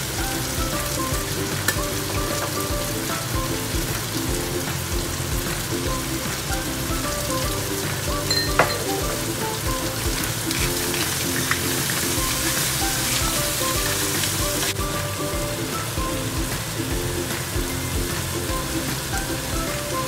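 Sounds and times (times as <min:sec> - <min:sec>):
background music with beat: 0:00.0 - 0:20.0
food sizzling in a wok: 0:00.0 - 0:20.0
sharp clink: 0:08.3 - 0:09.0.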